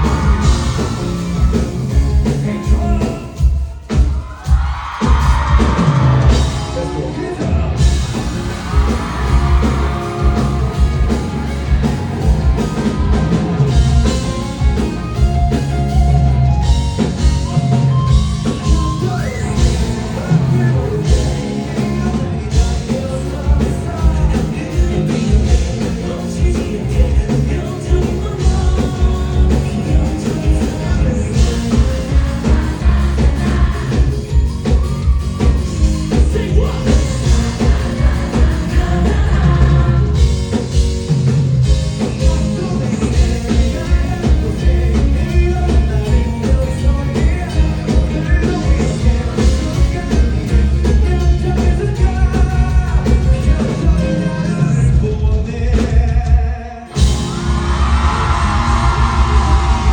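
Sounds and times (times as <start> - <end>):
bass guitar: 0.0 - 59.9
drums beating: 0.0 - 59.9
live rock band playing: 0.0 - 59.9
person singing: 17.0 - 41.1, 41.7 - 59.9.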